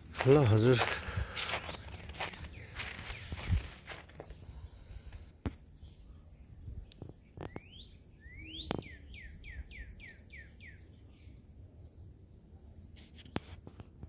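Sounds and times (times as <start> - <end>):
small bird singing: 0.4 - 11.5.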